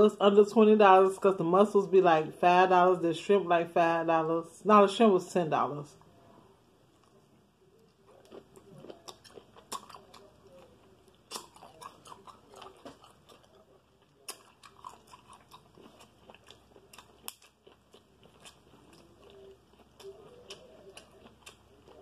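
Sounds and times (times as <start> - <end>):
person chewing seafood: 7.0 - 22.0.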